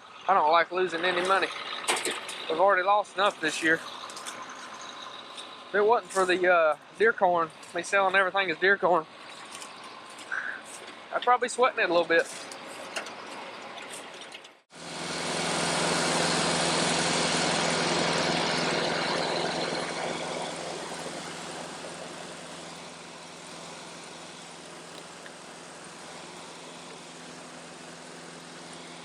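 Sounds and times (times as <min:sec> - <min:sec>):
tractor engine hum: 0:00.0 - 0:29.0
rotary cutter rushing noise: 0:14.8 - 0:29.0.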